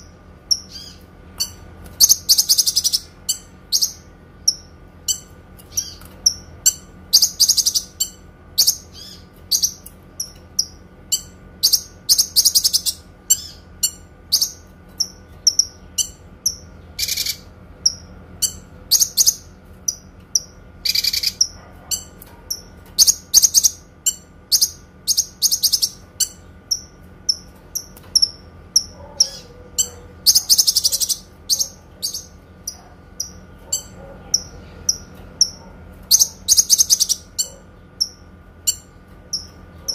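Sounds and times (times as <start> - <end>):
songbird trills: 0.0 - 39.9.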